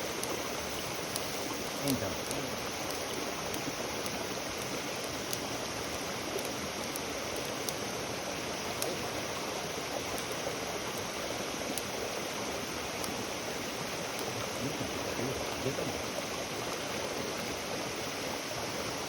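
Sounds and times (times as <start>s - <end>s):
campfire hissing and crackling: 0.0s - 19.0s.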